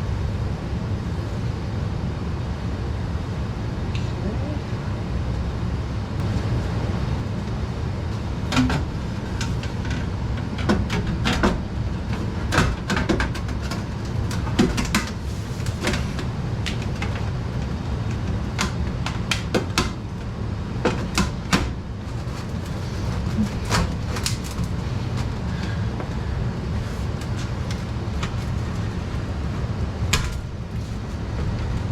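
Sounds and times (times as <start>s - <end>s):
steady low hum: 0.0s - 31.9s
objects knocking and clattering: 8.5s - 25.8s.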